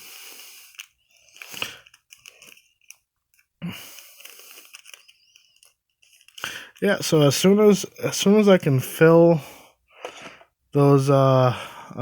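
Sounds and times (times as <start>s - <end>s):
card pack wrappers crinkling: 0.3s - 7.9s.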